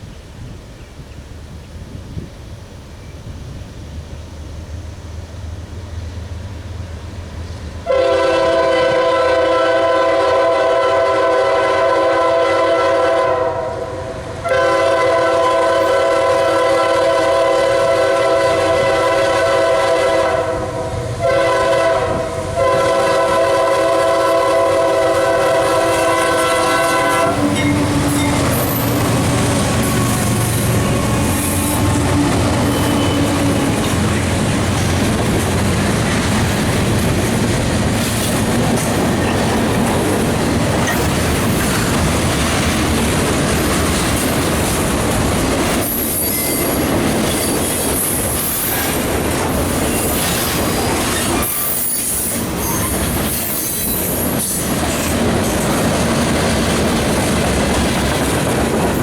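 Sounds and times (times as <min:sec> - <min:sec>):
locomotive air horn blowing: 0:07.8 - 0:33.8
wheels clacking over rail joints: 0:25.5 - 0:59.0.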